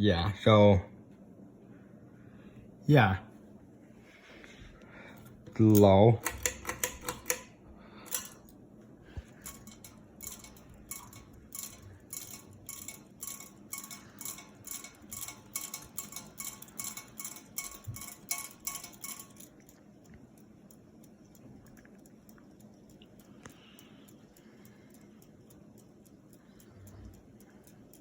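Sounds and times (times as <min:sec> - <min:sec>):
ceiling fan running: 0:00.0 - 0:28.0
light metallic clinking: 0:05.4 - 0:08.6, 0:09.2 - 0:28.0.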